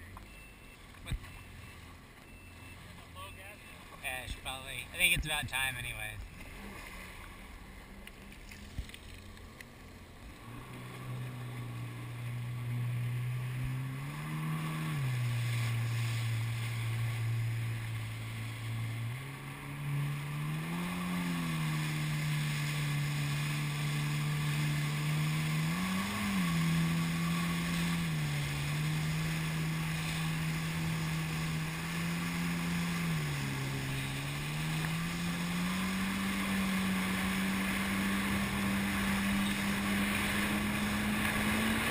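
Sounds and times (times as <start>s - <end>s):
jet ski engine running: 0.0s - 41.9s.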